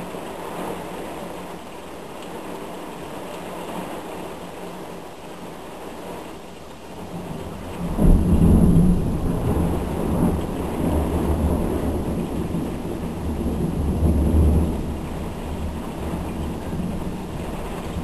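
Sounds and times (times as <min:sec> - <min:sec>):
rain falling: 0:00.0 - 0:18.0
thunder rolling: 0:07.1 - 0:18.0.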